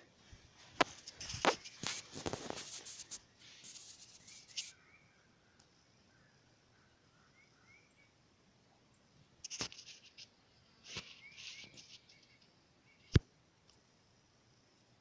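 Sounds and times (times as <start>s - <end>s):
faint rustling: 0.0s - 4.8s
bird chirps: 3.1s - 8.2s, 8.8s - 13.2s.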